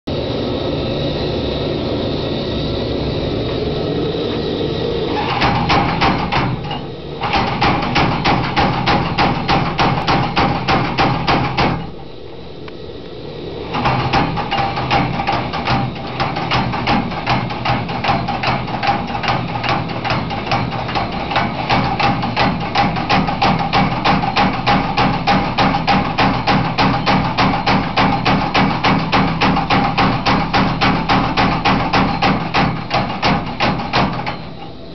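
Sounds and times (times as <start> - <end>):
power hammer running: 0.2 - 12.2, 13.4 - 34.9
hammer blows ringing on steel: 5.3 - 12.0, 13.8 - 34.7.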